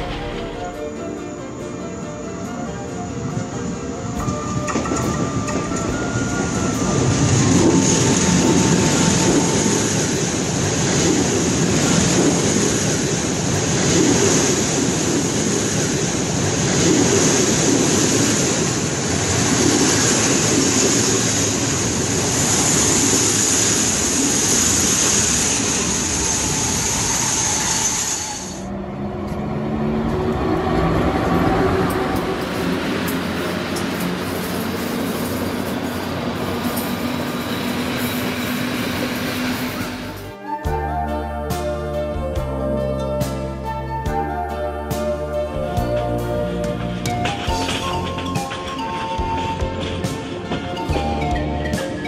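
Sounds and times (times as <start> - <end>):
background music: 0.0 - 25.0, 38.5 - 52.0
train wheels clickety-clack: 4.2 - 28.5, 30.0 - 40.3, 46.1 - 52.0.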